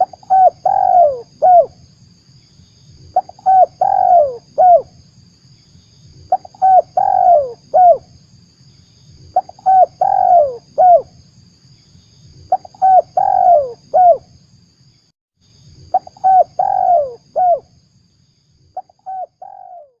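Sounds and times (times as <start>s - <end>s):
dove cooing: 0.0s - 1.8s, 3.2s - 4.9s, 6.3s - 8.0s, 9.4s - 11.1s, 12.5s - 14.2s, 15.9s - 17.6s, 18.8s - 20.0s.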